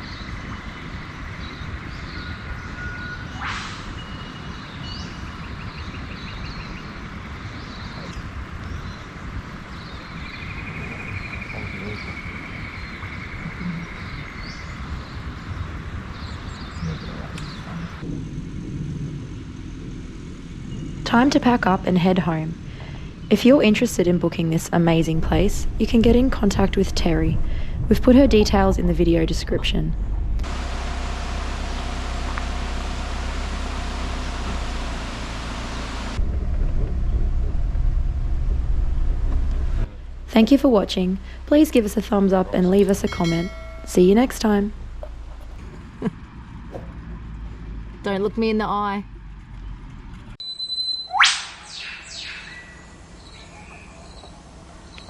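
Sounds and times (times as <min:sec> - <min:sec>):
road and wind noise: 0:00.0 - 0:50.4
low rumble: 0:05.8 - 0:50.4
bird chirps: 0:50.4 - 0:55.0.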